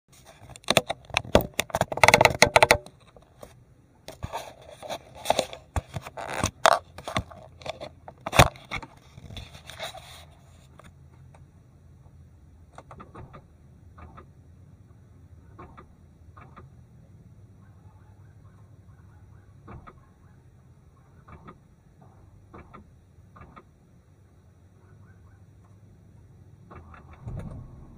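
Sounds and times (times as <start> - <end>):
clattering and scraping: 0.1 - 11.0
car engine humming: 10.9 - 27.9.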